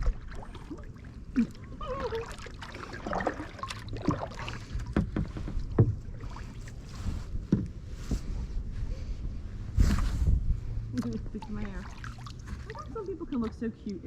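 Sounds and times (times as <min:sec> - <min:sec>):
paddle splashing in water: 0:00.0 - 0:07.7, 0:11.0 - 0:13.6
wind on microphone: 0:04.6 - 0:11.8.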